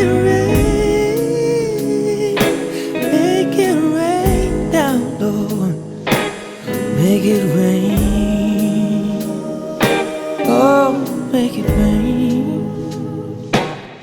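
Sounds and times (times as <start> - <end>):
bass: 0.0 - 2.4
man singing held notes: 0.0 - 5.8, 6.9 - 13.4
guitar: 0.0 - 14.0
drum hits: 0.5 - 1.2, 4.3 - 4.8, 11.7 - 12.2.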